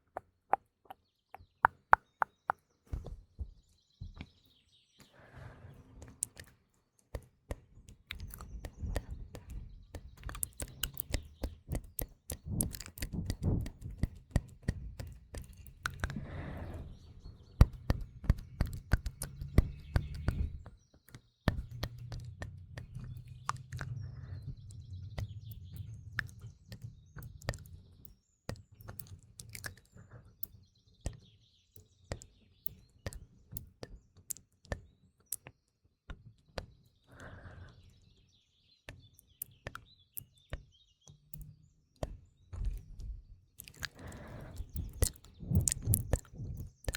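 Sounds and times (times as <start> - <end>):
faint birdsong chirping: 0.0 - 46.9
wet mouth clicks and smacks: 8.0 - 16.4, 17.6 - 20.6, 21.5 - 24.1, 25.2 - 27.8, 28.5 - 29.9, 43.6 - 46.9.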